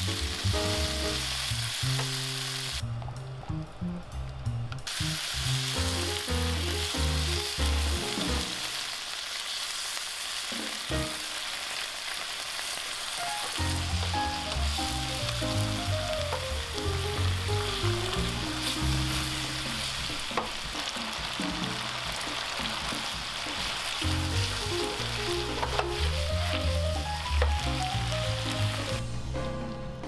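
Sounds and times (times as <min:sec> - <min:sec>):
food sizzling in frying pan: 0:00.0 - 0:02.8, 0:04.8 - 0:29.4
light background tune: 0:13.2 - 0:30.0.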